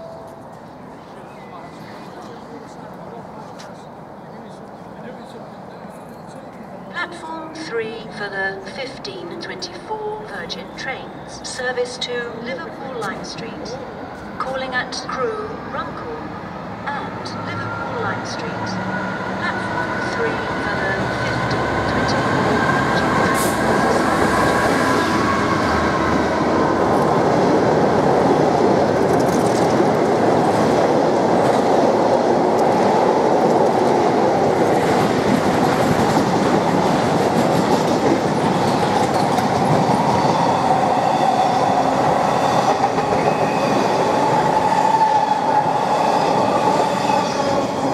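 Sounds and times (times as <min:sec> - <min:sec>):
diesel locomotive passing: 0:00.0 - 0:47.9
wagons rumbling and clacking on rails: 0:16.8 - 0:47.9.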